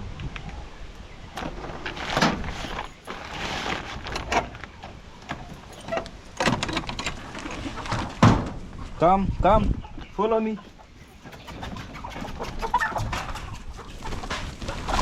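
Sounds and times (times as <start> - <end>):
coop door rattling and scraping: 1.4 - 8.7.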